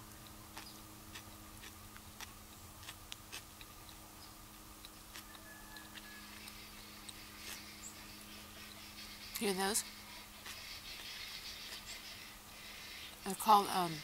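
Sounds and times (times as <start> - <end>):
person chewing sandwich: 0.0 - 8.8, 10.1 - 12.2.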